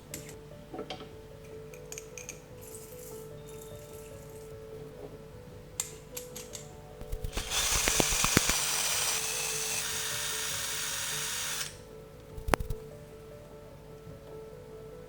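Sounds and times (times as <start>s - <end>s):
background music: 0.0s - 15.0s
clicks: 5.8s - 8.8s
kitchen machine whirring: 7.0s - 11.8s.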